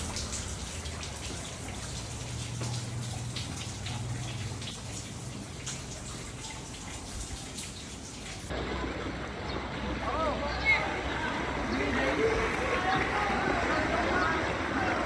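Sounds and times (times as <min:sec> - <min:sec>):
rain falling and dripping: 0:00.0 - 0:15.0.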